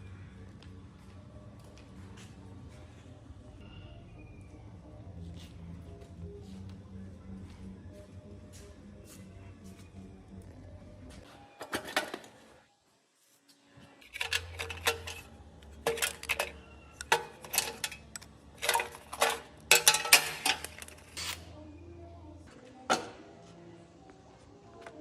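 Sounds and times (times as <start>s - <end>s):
faint low hum: 0.0s - 11.6s, 13.6s - 25.0s
metal tools clinking and clattering: 14.0s - 21.4s.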